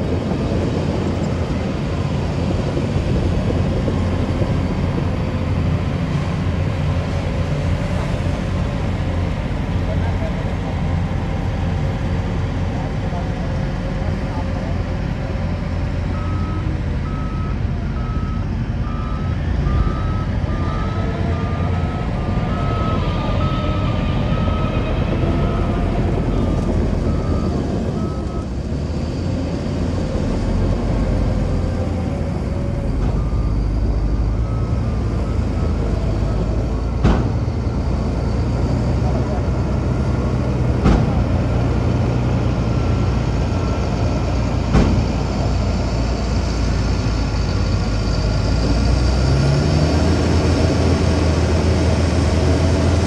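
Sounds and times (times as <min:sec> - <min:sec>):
diesel engine running: 0:00.0 - 0:53.0
reversing alarm beeping: 0:16.1 - 0:28.6, 0:32.6 - 0:38.3
sharp knock: 0:44.7 - 0:45.1.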